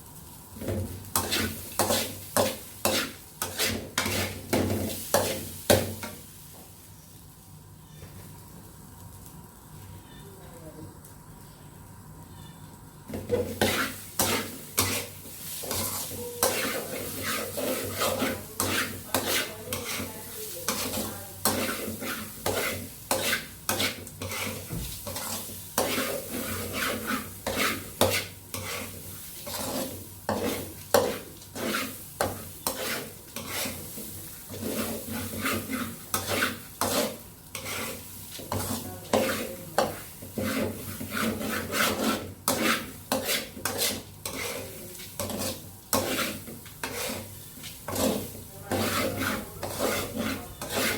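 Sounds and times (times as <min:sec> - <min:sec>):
utensil stirring and scraping pot: 0:00.6 - 0:06.2, 0:12.4 - 0:50.9.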